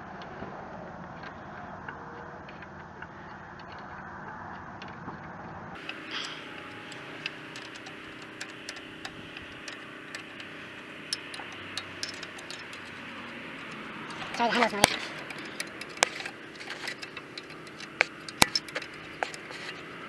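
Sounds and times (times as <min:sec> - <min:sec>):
steady background noise: 0:00.0 - 0:20.0
ratchet wrench clicking: 0:05.8 - 0:20.0.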